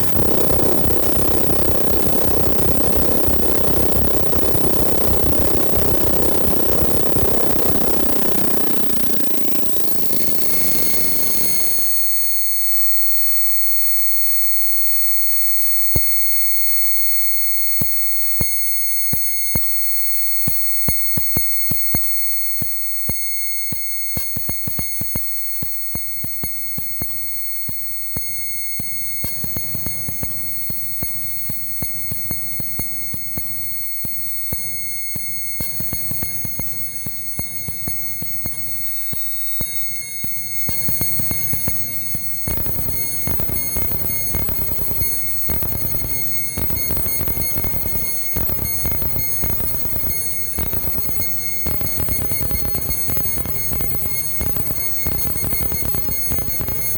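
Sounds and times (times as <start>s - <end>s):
glitchy electronic clicks: 0.0s - 12.6s, 20.5s - 56.9s
high-pitched synthesizer drone: 0.0s - 12.6s.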